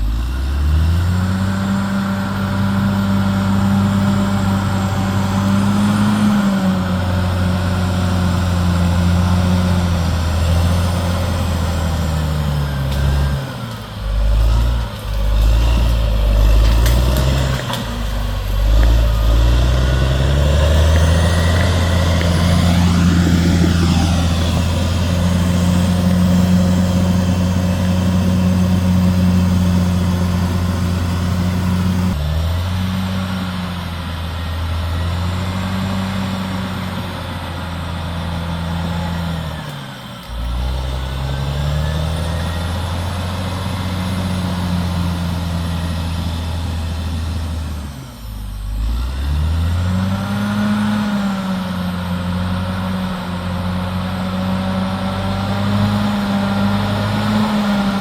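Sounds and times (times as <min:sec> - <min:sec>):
bulldozer diesel engine working: 0:00.0 - 0:58.0
rising and falling whine: 0:00.0 - 0:58.0.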